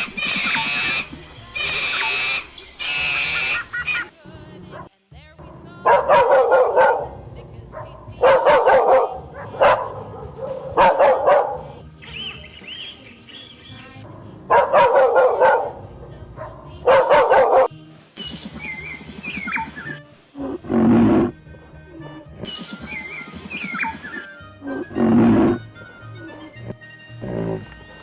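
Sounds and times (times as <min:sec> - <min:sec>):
background music: 0:00.0 - 0:28.0
dog barking: 0:04.6 - 0:04.9, 0:05.6 - 0:11.8, 0:14.5 - 0:17.7
animal low call: 0:23.7 - 0:28.0.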